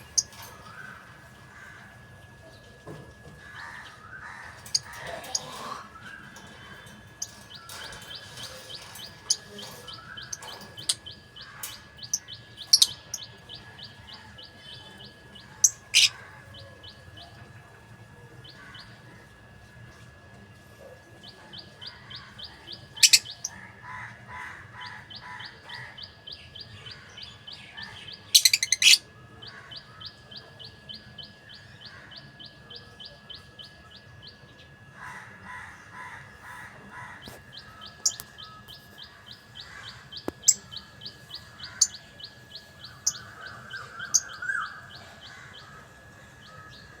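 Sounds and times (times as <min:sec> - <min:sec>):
soft bird chattering: 0:03.7 - 0:17.2, 0:21.5 - 0:23.6, 0:27.3 - 0:29.1, 0:36.1 - 0:45.3
lovebirds chirping rapidly: 0:04.4 - 0:16.2, 0:37.5 - 0:44.7.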